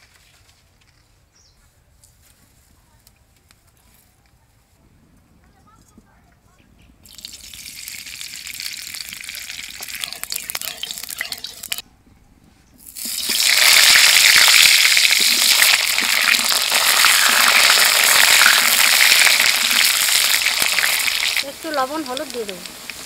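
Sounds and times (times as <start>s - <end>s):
crackles in oil: 7.0s - 11.8s, 12.8s - 23.0s
potatoes sizzling in hot oil: 7.1s - 11.8s, 12.8s - 23.0s.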